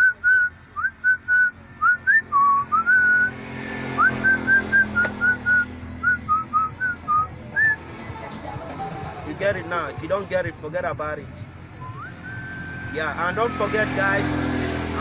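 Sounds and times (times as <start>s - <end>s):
person whistling a tune: 0.0s - 3.3s, 4.0s - 7.8s, 11.8s - 13.8s.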